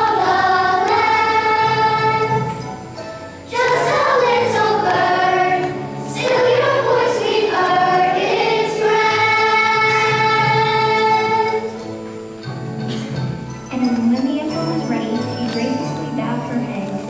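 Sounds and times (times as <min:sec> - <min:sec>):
voices singing together: 0:00.0 - 0:11.9.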